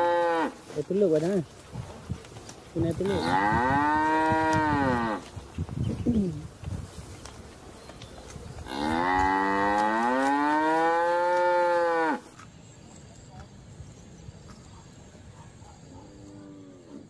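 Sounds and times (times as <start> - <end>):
cattle mooing: 3.0 - 5.2, 8.7 - 12.3.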